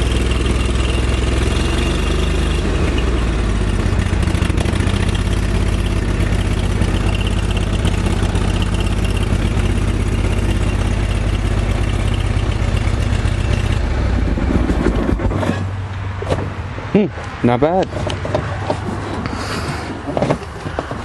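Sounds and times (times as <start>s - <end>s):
garden tractor engine running: 0.0s - 16.0s.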